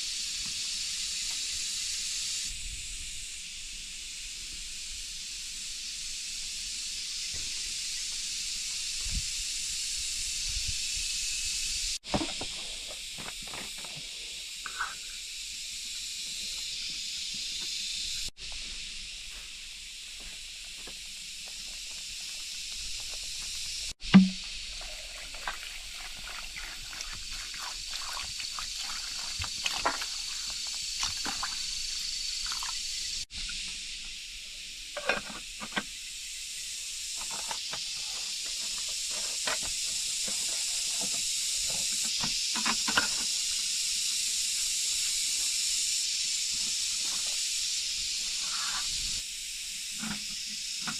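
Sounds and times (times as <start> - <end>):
loud thump: 24.0 - 24.4.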